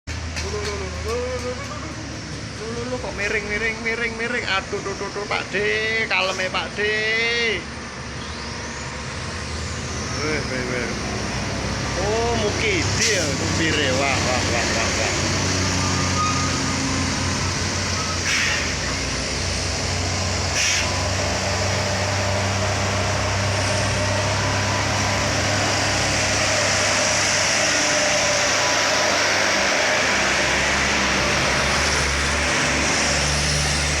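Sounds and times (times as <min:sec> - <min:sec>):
road noise: 0:00.0 - 0:34.0
truck engine running: 0:00.1 - 0:34.0
short air hisses: 0:18.2 - 0:18.8, 0:20.5 - 0:21.0.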